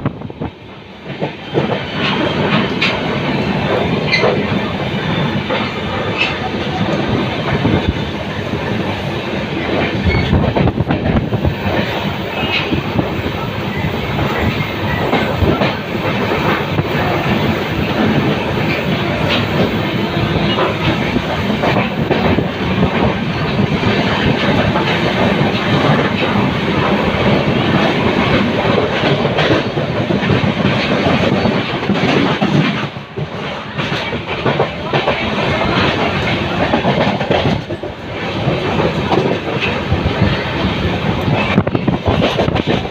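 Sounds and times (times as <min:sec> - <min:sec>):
train rumbling on track: 0:00.0 - 0:42.9
wheels clacking over rail joints: 0:01.0 - 0:08.0, 0:08.6 - 0:42.9.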